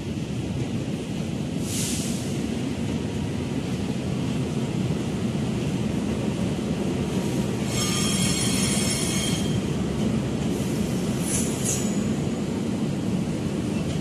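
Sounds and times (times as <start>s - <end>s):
train wheels rumbling on rail: 0.0s - 14.0s
high metallic wheel squeal: 7.6s - 9.6s.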